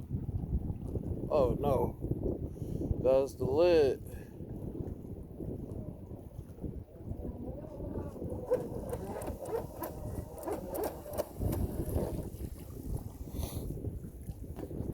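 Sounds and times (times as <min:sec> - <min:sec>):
wind buffeting microphone: 0:00.0 - 0:14.9
faint whine of boat motor: 0:04.2 - 0:13.4.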